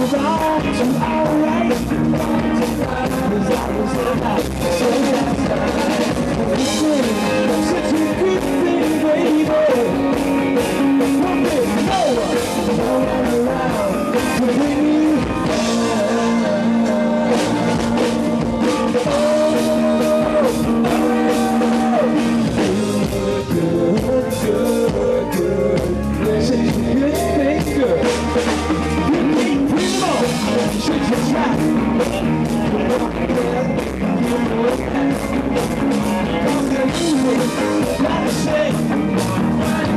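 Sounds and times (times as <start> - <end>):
drum kit: 0.0 - 39.9
electric guitar: 0.0 - 39.9
lead vocals singing: 0.0 - 39.9.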